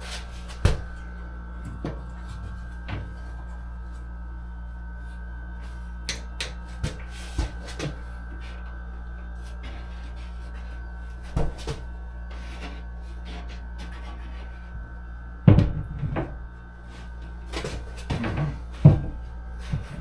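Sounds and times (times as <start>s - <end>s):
steady low hum: 0.0s - 20.0s
heavy thump: 15.5s - 16.3s.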